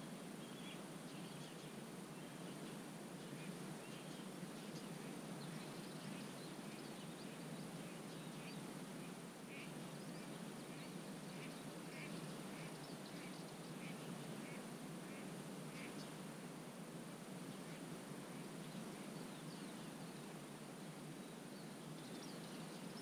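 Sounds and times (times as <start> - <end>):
birds chirping faintly: 0.4 - 16.2.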